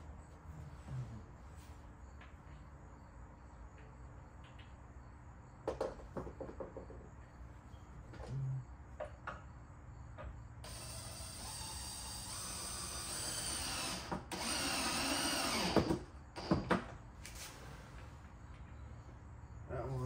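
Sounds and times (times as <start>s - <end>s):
power drill whining: 10.6s - 16.8s.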